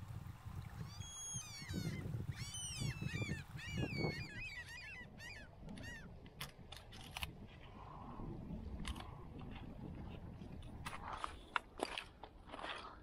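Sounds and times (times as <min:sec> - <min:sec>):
low rumble of wind: 0:00.0 - 0:13.0
birds high down-slurred calls: 0:00.8 - 0:06.1.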